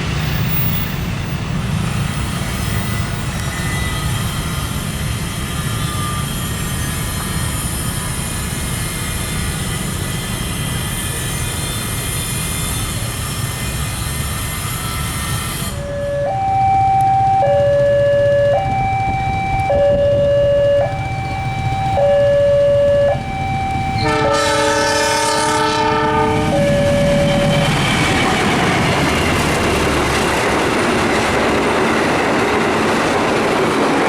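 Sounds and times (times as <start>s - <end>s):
train passing with whining wheels: 0.0s - 34.0s
two-tone signal: 15.8s - 27.8s.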